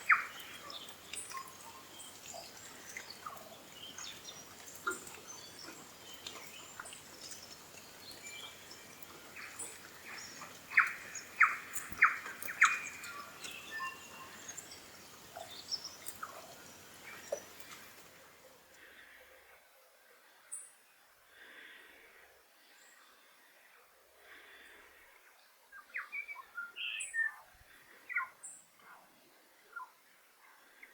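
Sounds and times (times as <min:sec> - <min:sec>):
bird chirping: 0:00.0 - 0:17.8.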